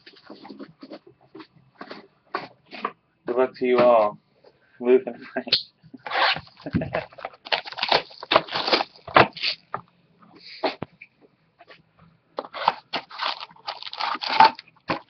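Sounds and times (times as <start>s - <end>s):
cardboard packaging crinkling: 6.1s - 9.6s, 12.4s - 15.0s.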